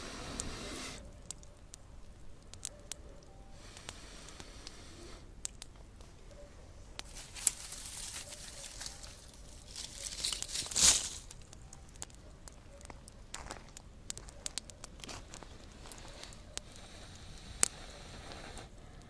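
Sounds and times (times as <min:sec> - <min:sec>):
fire hiss: 0:00.0 - 0:01.1, 0:03.5 - 0:05.7, 0:15.6 - 0:19.0
fire pops: 0:00.0 - 0:03.0, 0:03.6 - 0:06.2, 0:06.9 - 0:19.0
campfire crackling: 0:00.0 - 0:19.0.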